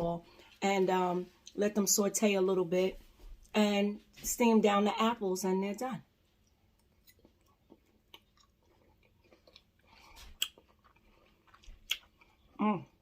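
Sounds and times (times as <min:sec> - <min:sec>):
person chewing crunchy food: 0:06.2 - 0:13.0.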